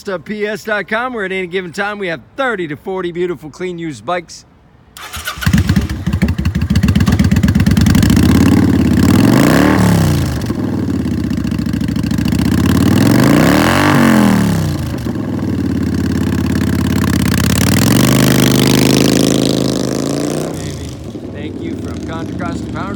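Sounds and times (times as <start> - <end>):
motorcycle engine revving: 5.0 - 22.9
motorcycle engine starting and idling: 5.0 - 22.9.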